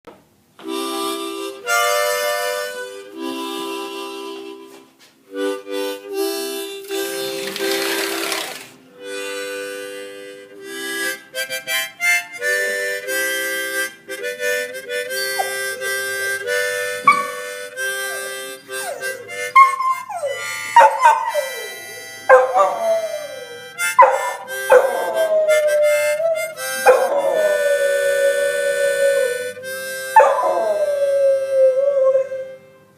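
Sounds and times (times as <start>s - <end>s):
harmonica playing chords: 0.6s - 8.3s, 8.9s - 32.9s
dog howling: 18.0s - 32.5s.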